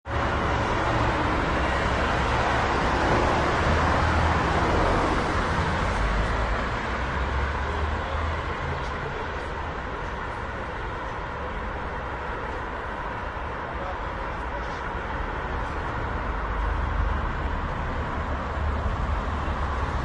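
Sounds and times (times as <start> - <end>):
traffic hum: 0.0 - 20.0.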